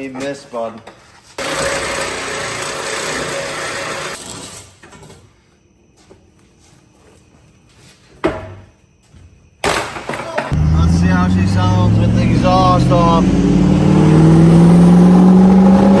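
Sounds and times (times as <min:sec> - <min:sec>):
power tool whining: 0:01.4 - 0:04.2.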